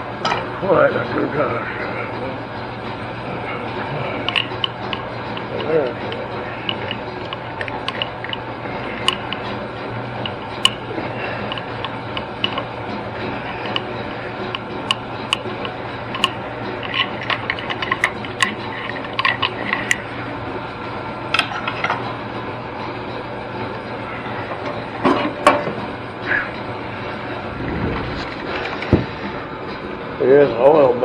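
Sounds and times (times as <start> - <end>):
steady background hum: 0.0 - 31.0
metallic clicks of engine parts: 10.6 - 10.8, 16.2 - 18.6.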